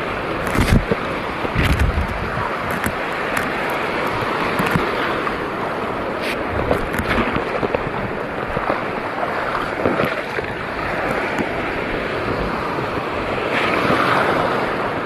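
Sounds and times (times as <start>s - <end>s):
wind noise on microphone: 0.0s - 5.2s, 5.9s - 15.0s
seawater sloshing and splashing: 0.0s - 15.0s
small crackles: 1.6s - 3.5s.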